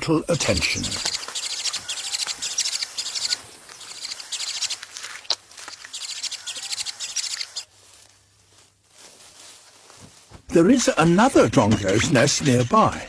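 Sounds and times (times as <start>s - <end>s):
chick begging calls: 0.3s - 7.7s.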